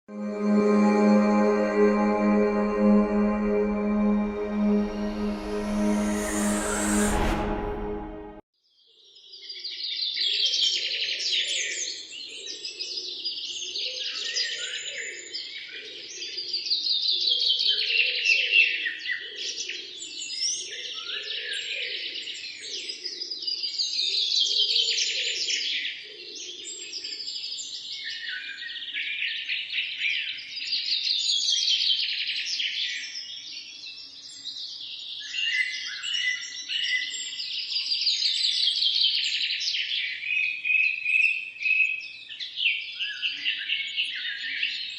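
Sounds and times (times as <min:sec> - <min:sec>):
faint low pulsing sound: 0:00.1 - 0:08.4.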